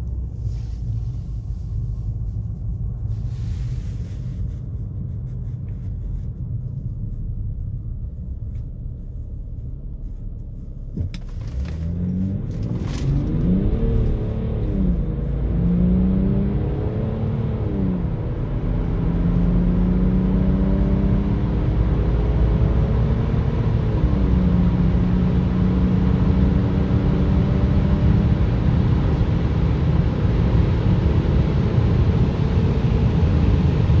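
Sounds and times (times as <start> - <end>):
road and wind roar: 0.0 - 34.0
diesel engine accelerating hard: 10.6 - 34.0.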